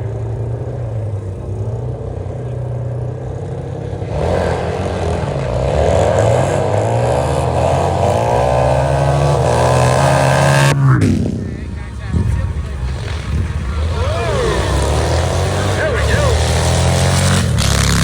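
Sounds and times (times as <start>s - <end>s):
motorcycle engine idling: 0.0s - 5.6s, 11.2s - 18.0s
engine revving up: 3.8s - 18.0s.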